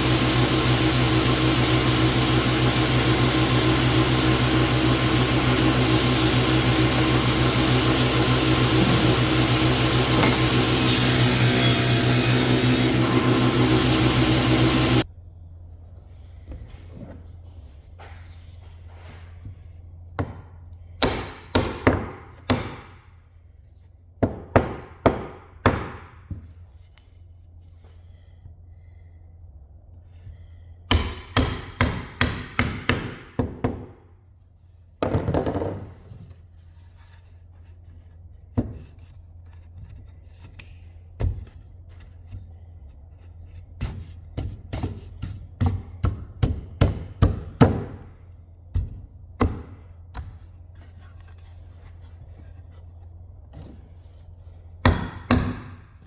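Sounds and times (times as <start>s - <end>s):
steady low hum: 12.7s - 21.4s, 26.3s - 31.2s.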